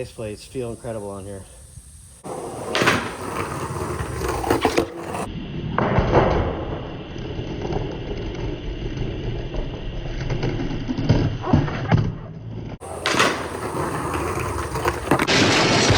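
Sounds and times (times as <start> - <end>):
skateboard wheels rolling on concrete: 0.0 - 15.9.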